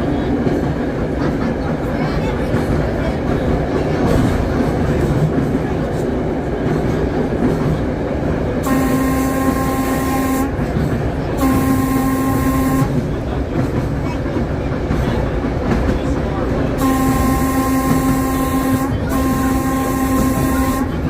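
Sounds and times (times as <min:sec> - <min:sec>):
trolley car rumbling: 0:00.0 - 0:21.0
air horn blasts: 0:08.6 - 0:10.6, 0:11.4 - 0:13.0, 0:16.8 - 0:21.0.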